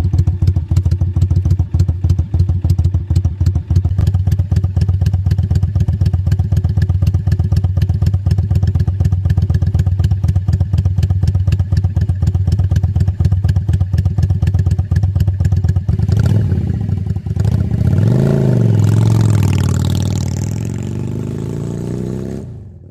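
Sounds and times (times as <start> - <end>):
motorcycle engine idling: 0.0 - 21.5
motorcycle engine revving: 0.0 - 22.9.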